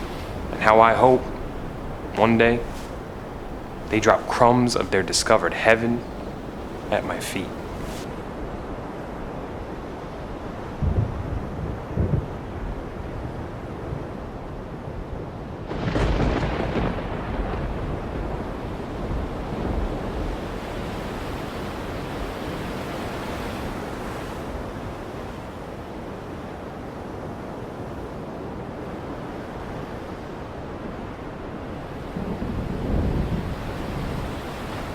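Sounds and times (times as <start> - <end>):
surf rushing: 0.0 - 9.2, 31.2 - 34.9.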